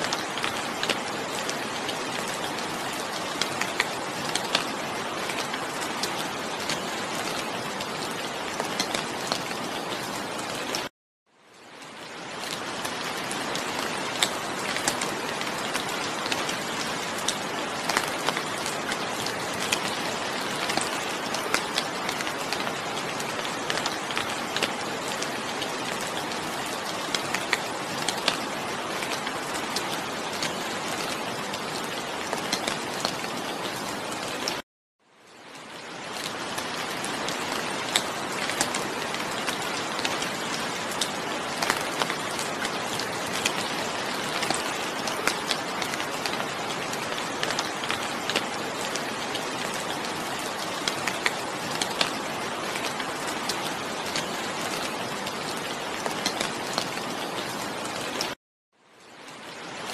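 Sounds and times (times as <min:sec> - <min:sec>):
steady rain falling: 0:00.0 - 0:59.9
raindrops ticking: 0:12.1 - 0:34.6, 0:35.3 - 0:58.3.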